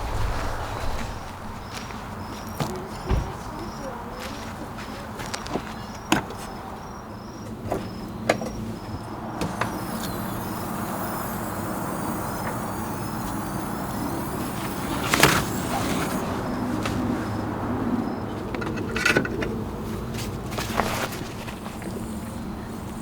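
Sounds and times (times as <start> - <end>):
background hiss: 9.5 - 18.3
faint high pulse: 9.6 - 16.6.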